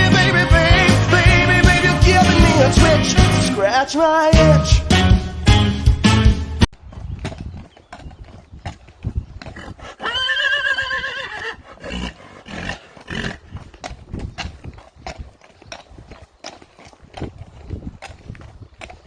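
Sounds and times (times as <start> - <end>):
hooves clip-clopping: 6.8 - 19.0
horse whinnying: 9.4 - 13.4.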